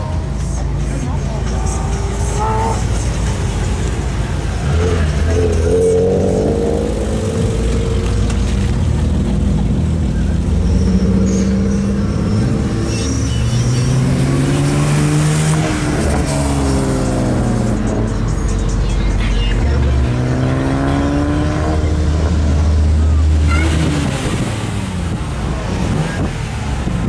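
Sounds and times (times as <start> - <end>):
car engine revving: 0.0 - 27.0
car accelerating past: 19.8 - 26.8.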